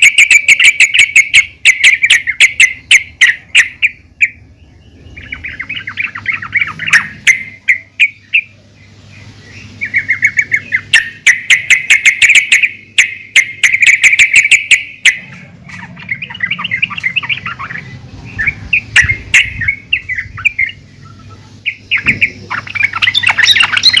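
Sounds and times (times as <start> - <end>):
bird bubbly chattering: 5.2 - 8.6, 9.2 - 24.0
bird sharp clicking notes: 10.3 - 17.6.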